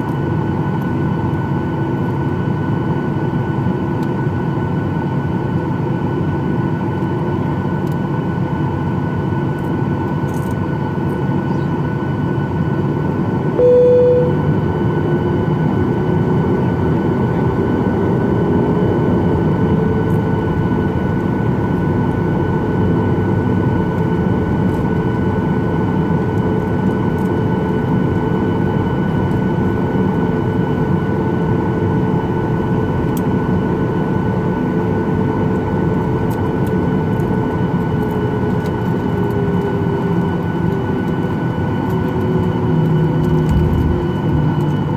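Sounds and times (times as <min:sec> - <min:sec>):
jet engines whining in cabin: 0:00.0 - 0:44.9
brief single tone: 0:13.6 - 0:14.7.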